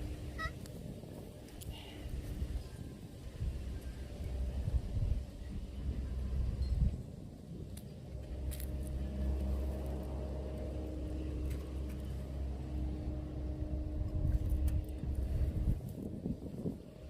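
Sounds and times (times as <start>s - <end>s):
vehicle engine running: 0.0s - 0.7s, 8.0s - 15.9s.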